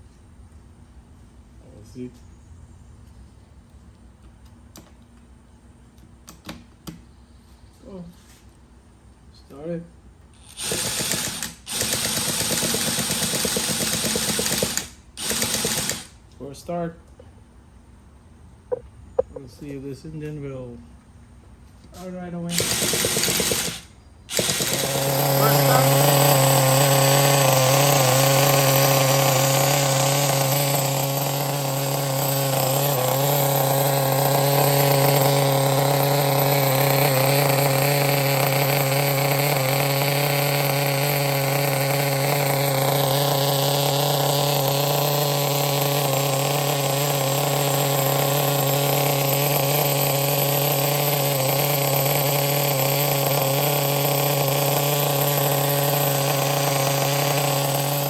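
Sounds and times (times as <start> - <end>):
small nitro engine idling: 10.4 - 16.1, 22.5 - 58.0.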